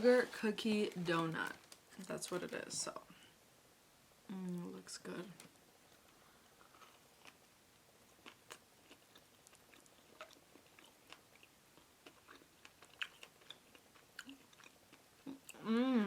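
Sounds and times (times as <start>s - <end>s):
chewing soft food: 5.4s - 15.7s.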